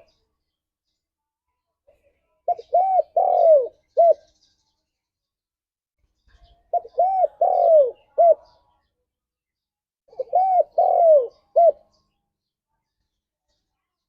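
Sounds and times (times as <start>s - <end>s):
dove cooing: 2.5s - 4.3s, 6.7s - 8.6s, 10.1s - 11.9s.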